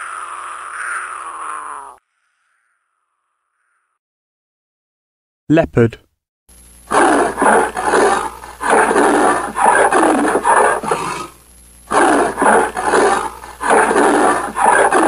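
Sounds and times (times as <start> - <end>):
leopard rasping sawing call: 6.9 - 15.0.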